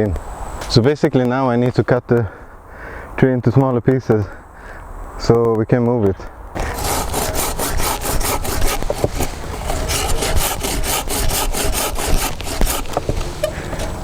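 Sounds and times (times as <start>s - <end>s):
hand saw cutting branch: 6.6s - 14.0s.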